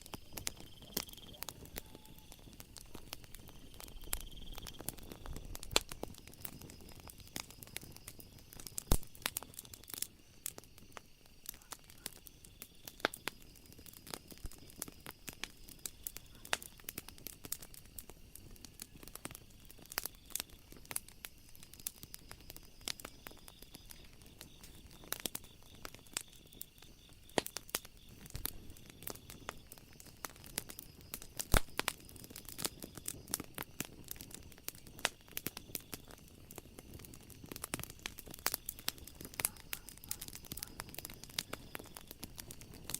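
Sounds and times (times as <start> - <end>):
wood fire crackling: 0.0 - 42.9
faint steady high tone: 0.3 - 2.6.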